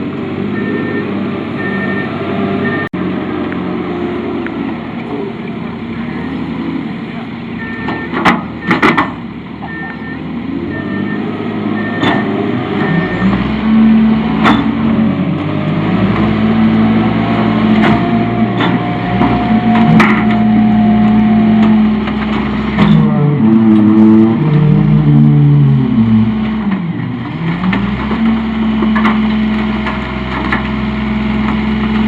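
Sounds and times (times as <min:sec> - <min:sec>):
truck engine revving: 0:00.0 - 0:32.0.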